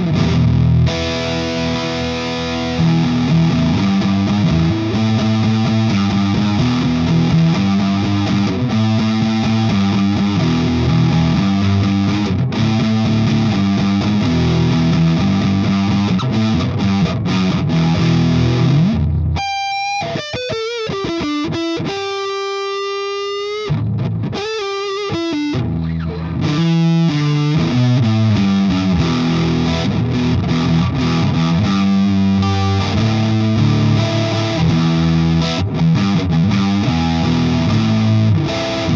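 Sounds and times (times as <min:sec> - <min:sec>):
fuzz-distorted electric guitar: 0:00.0 - 0:38.9.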